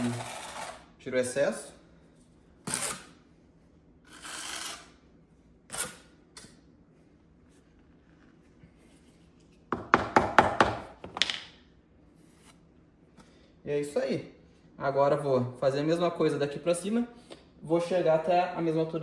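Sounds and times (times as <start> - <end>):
hand tool scraping adhesive off stone: 2.7 - 3.2
sharp knocks on stone: 9.7 - 11.5.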